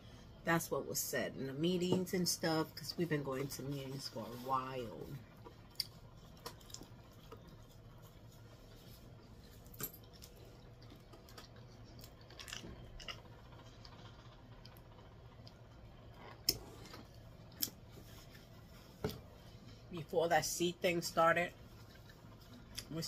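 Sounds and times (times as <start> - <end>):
person chewing: 5.7 - 8.4, 10.0 - 14.0.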